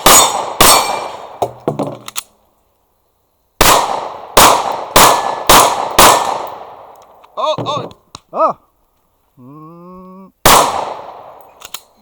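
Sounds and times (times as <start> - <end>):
pistol shots: 0.0 - 1.6, 3.6 - 6.9, 10.4 - 11.4.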